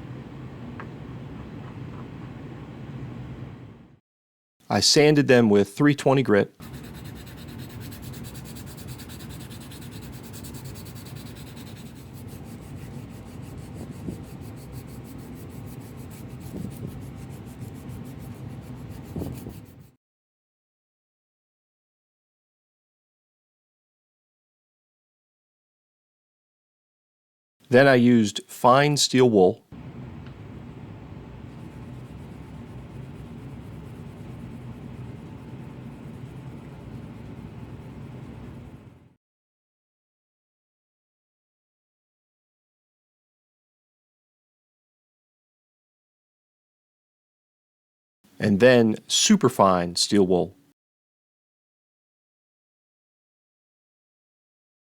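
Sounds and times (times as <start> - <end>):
sandpaper rubbing on plastic: 6.6 - 19.9, 31.6 - 38.9.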